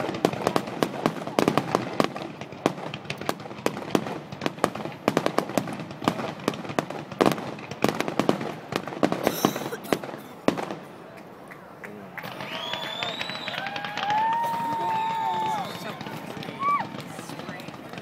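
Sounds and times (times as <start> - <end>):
fireworks bangs and crackles: 0.0 - 11.5, 12.1 - 18.0.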